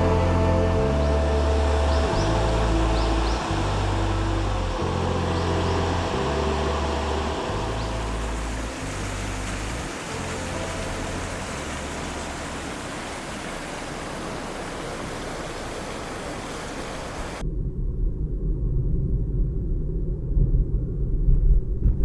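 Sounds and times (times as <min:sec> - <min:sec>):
river water rushing: 0:00.0 - 0:17.4
gusting low rumble: 0:00.0 - 0:22.0.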